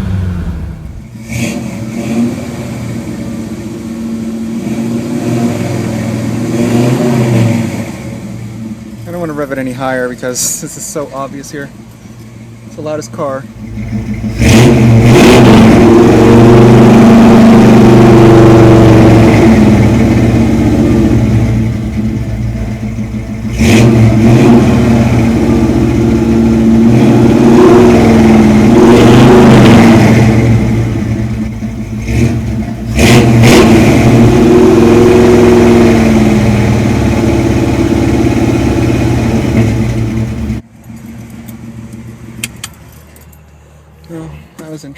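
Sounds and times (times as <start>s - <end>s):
car engine revving: 0.0s - 3.3s, 13.6s - 40.6s.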